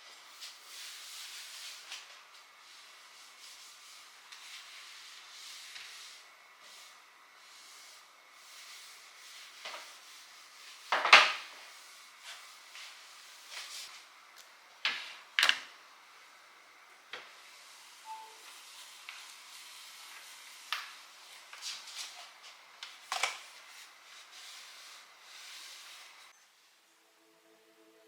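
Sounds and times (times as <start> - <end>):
short faint beep: 18.0 - 18.4.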